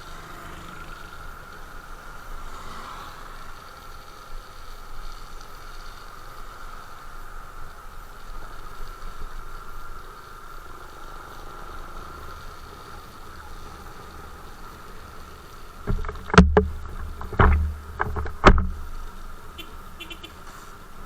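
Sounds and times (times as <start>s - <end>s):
motorcycle riding hum: 9.3s - 21.0s
loud knocks on microphone: 15.9s - 18.9s.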